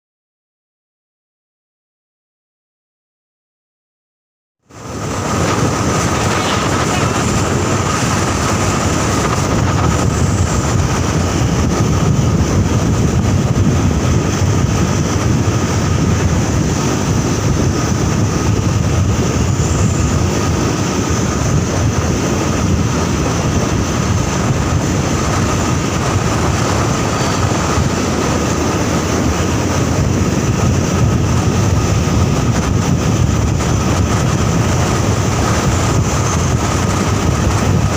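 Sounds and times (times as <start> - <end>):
heavy vehicle engine: 4.6 - 37.9
road noise: 4.6 - 37.9
wind on microphone: 4.7 - 37.9.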